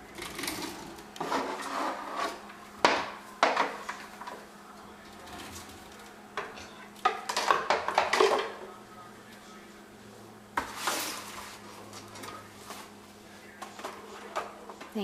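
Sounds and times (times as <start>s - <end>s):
household objects clattering: 5.1s - 8.6s.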